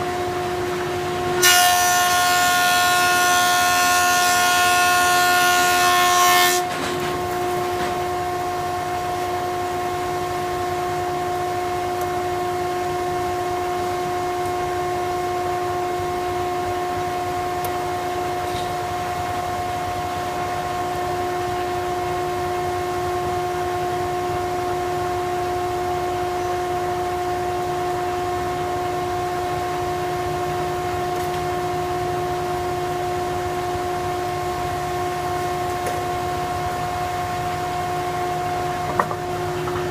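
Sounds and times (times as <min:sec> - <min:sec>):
planer steady whine: 0:00.0 - 0:39.9
thickness planer cutting board: 0:01.4 - 0:07.2.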